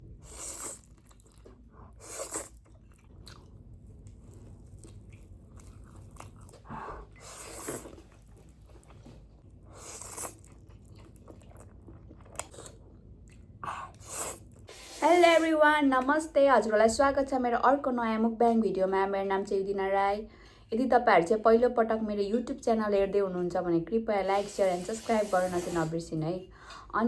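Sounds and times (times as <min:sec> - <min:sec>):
person chewing noodles: 0:00.1 - 0:14.9.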